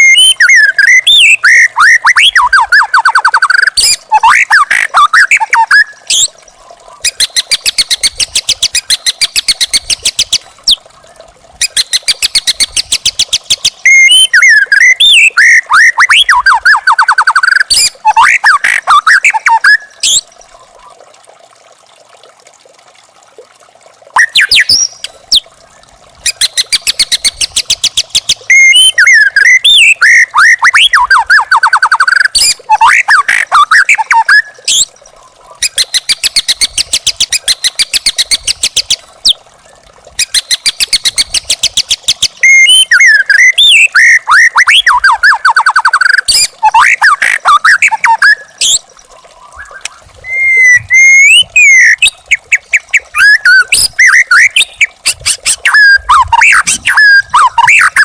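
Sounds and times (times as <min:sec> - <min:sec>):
bird singing whistled phrases: 0:00.0 - 0:06.3, 0:11.6 - 0:20.2, 0:24.2 - 0:25.4, 0:26.3 - 0:34.9, 0:42.4 - 0:48.8, 0:49.4 - 0:58.0.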